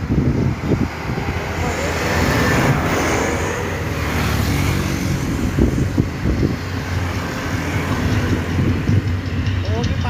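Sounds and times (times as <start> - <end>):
heavy truck engines rumbling: 0.0 - 10.0
road traffic noise: 0.0 - 10.0.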